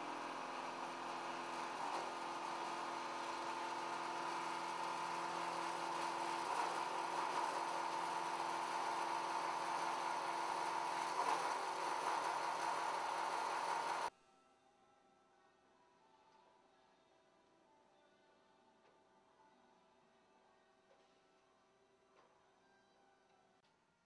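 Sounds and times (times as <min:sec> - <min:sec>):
band saw whirring and humming: 0:00.0 - 0:14.1.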